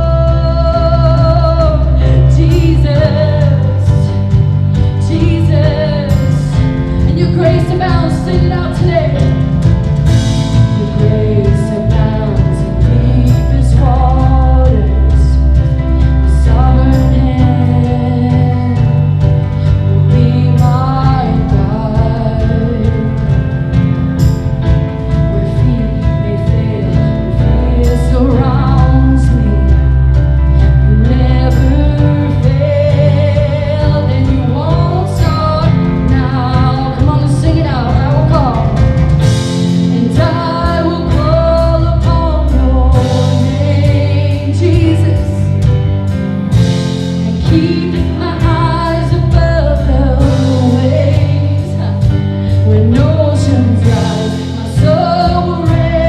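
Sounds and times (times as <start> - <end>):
drums and cymbals: 0.0 - 56.0
sustained bass: 0.0 - 56.0
person singing: 10.5 - 23.9, 25.1 - 45.9, 46.7 - 56.0.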